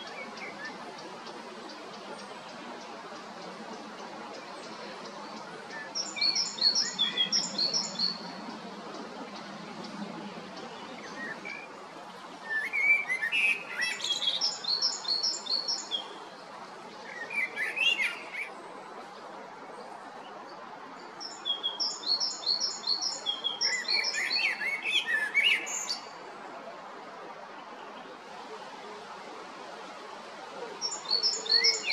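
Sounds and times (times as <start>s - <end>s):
background hiss: 0.0s - 31.9s
great tit singing: 4.2s - 9.9s, 21.2s - 26.0s, 30.8s - 31.9s.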